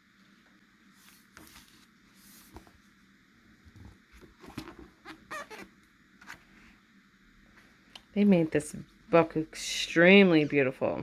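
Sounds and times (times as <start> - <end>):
book jacket rustling and squeaking: 3.7 - 6.4.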